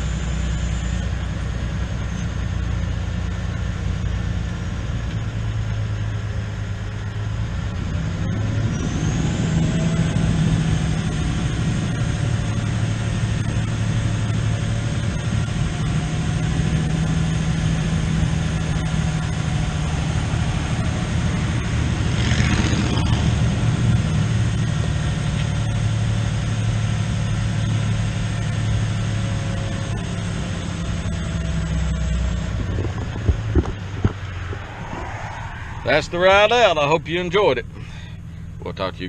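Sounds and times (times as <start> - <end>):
tractor engine running: 0.0 - 39.0
brief rushing noise: 33.7 - 36.8.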